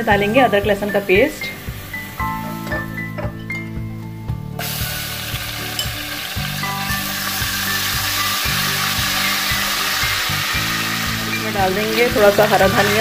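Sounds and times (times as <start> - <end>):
background music with steady beat: 0.0 - 13.0
paste sizzling in hot oil: 4.6 - 13.0.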